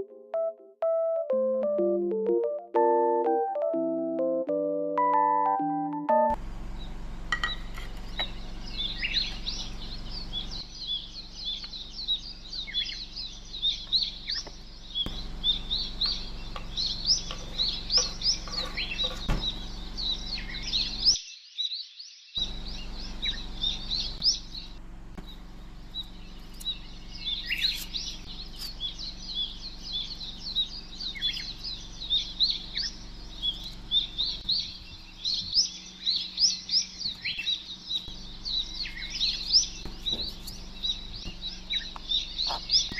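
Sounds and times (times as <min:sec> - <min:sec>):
small birds chirping: 0:06.3 - 0:42.9.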